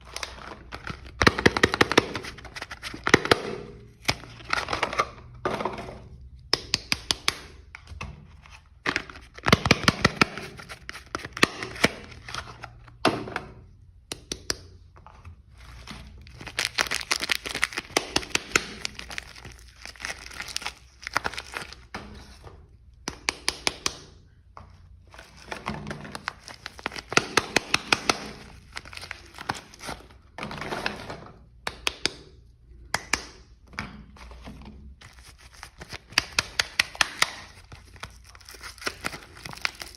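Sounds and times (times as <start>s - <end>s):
wrapper crinkling and tearing: 15.7s - 21.9s, 25.2s - 30.2s, 35.0s - 39.9s.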